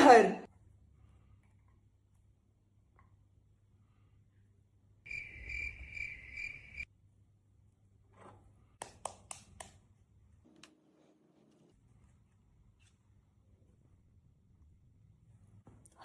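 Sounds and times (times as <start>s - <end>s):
cricket chirping trill: 5.1s - 6.9s.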